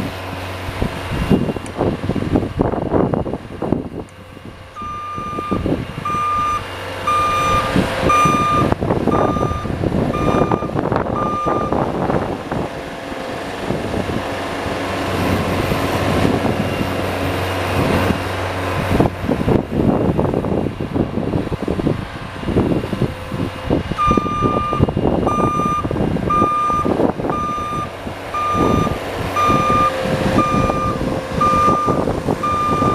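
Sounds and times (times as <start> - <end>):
engine running: 0.0 - 32.9
snow plow scraping rumble: 0.0 - 32.9
reversing alarm beeping: 4.8 - 11.9, 24.0 - 32.9.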